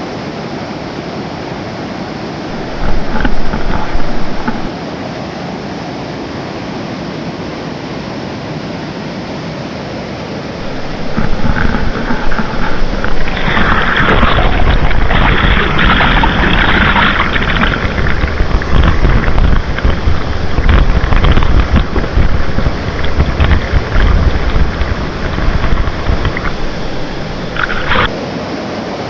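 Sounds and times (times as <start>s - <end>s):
river water rushing: 2.5s - 4.7s, 10.6s - 29.0s
wind buffeting microphone: 2.5s - 4.7s, 10.6s - 28.2s.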